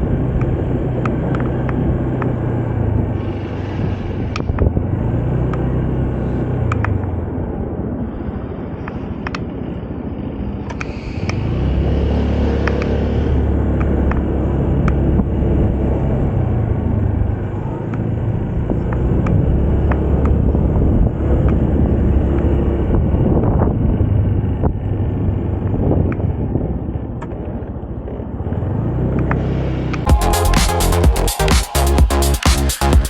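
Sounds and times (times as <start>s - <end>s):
road rumble: 0.0s - 33.0s
scooter engine: 0.0s - 33.0s.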